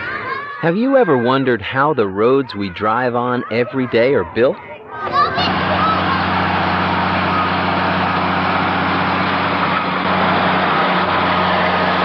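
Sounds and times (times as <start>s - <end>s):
heavy vehicle engine running: 5.1s - 12.0s.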